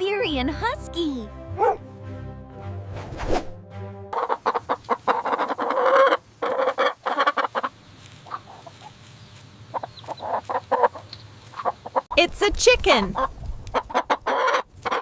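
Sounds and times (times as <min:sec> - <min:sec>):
chicken clucking: 0:04.2 - 0:12.1, 0:13.2 - 0:15.0.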